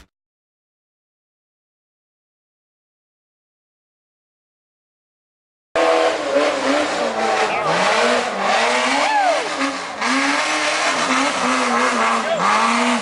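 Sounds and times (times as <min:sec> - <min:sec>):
engine revving hard: 0:05.8 - 0:13.0.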